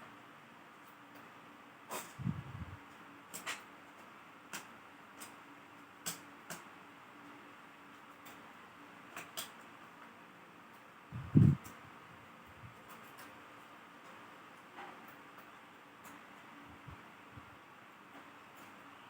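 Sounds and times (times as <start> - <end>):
low steady hum: 0.0 - 19.0
small tools clicking and tapping: 2.9 - 5.4, 6.0 - 6.7, 9.1 - 10.0, 12.7 - 13.4.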